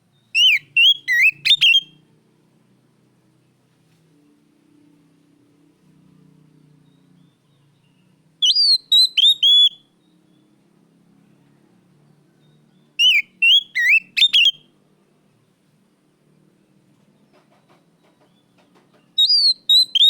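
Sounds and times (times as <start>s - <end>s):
bird singing whistled notes: 0.1s - 2.0s, 6.8s - 10.5s, 12.4s - 14.7s, 19.1s - 20.0s.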